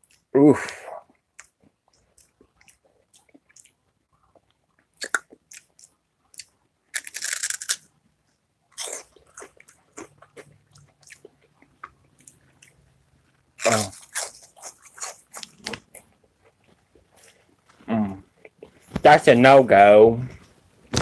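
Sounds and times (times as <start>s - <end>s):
crunchy chip chewing: 5.0s - 7.9s, 13.6s - 16.1s.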